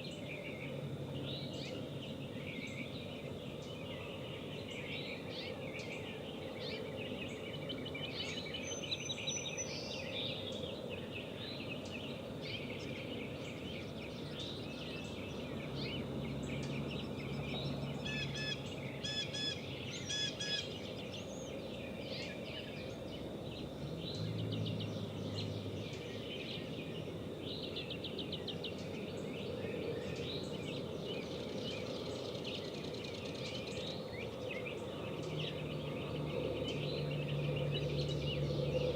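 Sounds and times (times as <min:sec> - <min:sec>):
birds chirping and trilling: 0:00.0 - 0:38.9
outdoor background hiss: 0:00.0 - 0:38.9
sharp repeated bird calls: 0:18.0 - 0:20.8.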